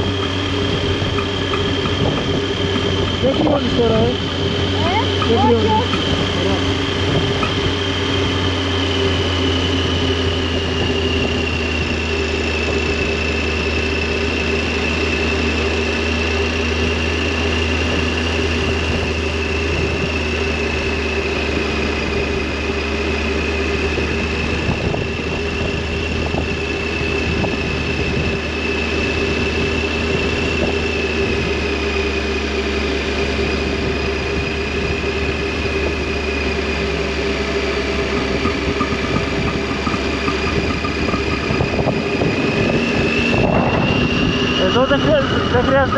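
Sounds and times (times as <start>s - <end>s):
motorcycle engine running steadily: 0.0s - 45.9s
thin high whine: 36.0s - 45.9s.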